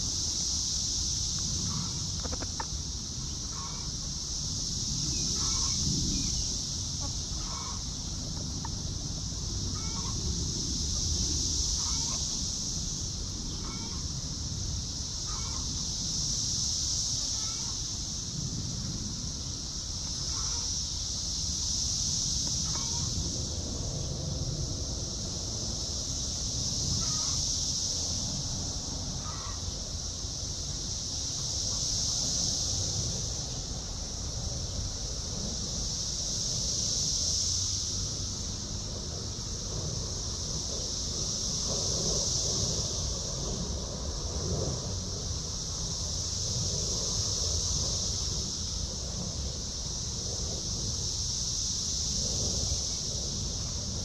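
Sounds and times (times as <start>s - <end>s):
low wind rumble: 0.0s - 54.0s
steady high hiss: 0.0s - 54.0s
chickens clucking: 1.9s - 2.8s.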